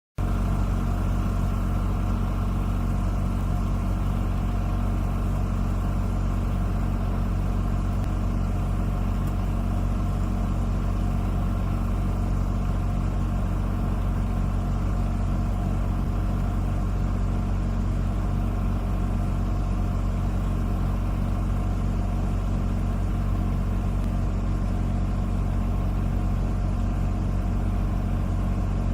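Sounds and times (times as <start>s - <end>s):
engine running steadily: 0.2s - 28.9s.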